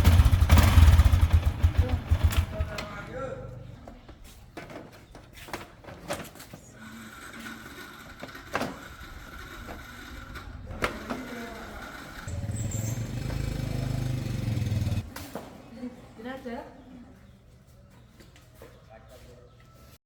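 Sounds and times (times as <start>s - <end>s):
motorcycle engine running: 0.0s - 3.9s, 9.4s - 15.1s.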